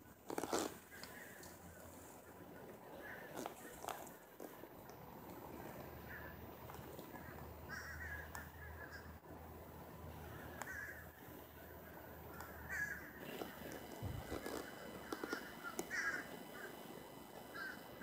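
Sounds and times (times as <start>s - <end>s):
low steady hum: 0.0s - 18.0s
harsh bird calls: 5.6s - 9.2s, 10.6s - 11.2s, 12.2s - 18.0s.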